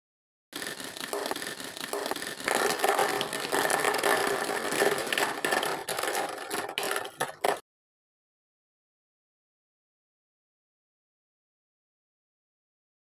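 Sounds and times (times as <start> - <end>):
small motor whirring: 0.6 - 7.5
rattling and scraping: 0.6 - 7.6.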